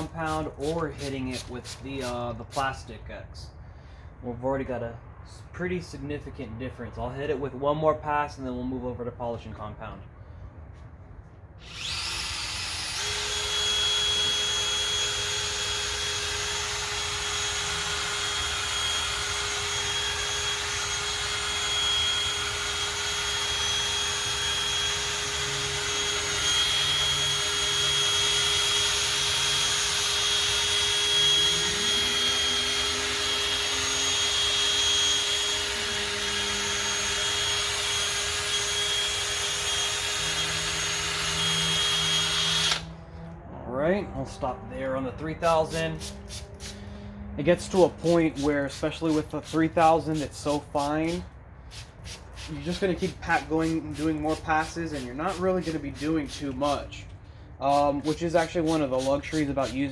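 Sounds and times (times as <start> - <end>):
power tool whining: 11.6 - 51.2
low hum: 42.5 - 48.1.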